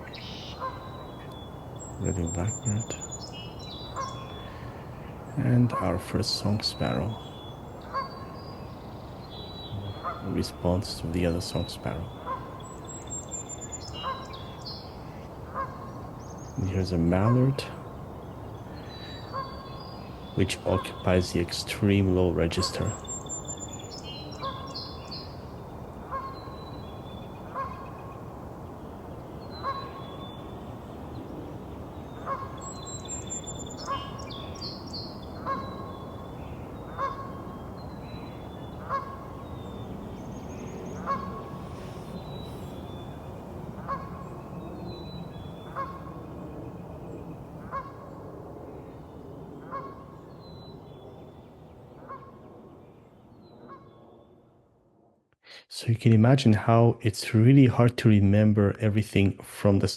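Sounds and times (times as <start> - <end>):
songbird trills: 0.0 - 54.4
goose honking: 9.8 - 12.6, 15.1 - 15.8, 20.4 - 23.0, 26.1 - 26.4, 32.2 - 32.6, 35.4 - 36.0, 36.9 - 37.4, 38.8 - 39.4, 41.0 - 42.8, 43.8 - 44.2, 45.7 - 46.2.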